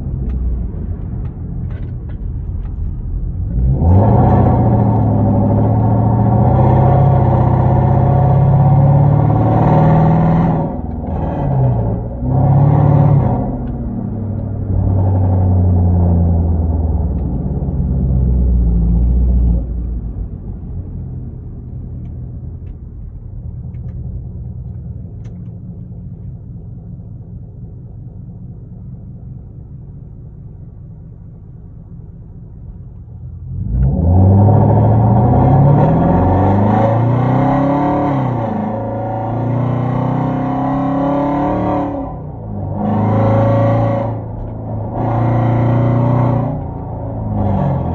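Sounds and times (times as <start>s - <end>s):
loud car exhaust: 1.3s - 23.3s, 26.5s - 47.9s.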